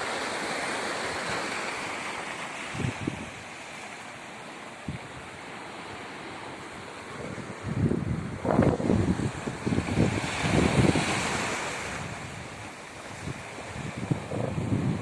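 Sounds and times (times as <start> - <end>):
sea surf breaking on shore: 0.0 - 15.0
wind thumps on microphone: 7.2 - 11.4, 13.2 - 15.0.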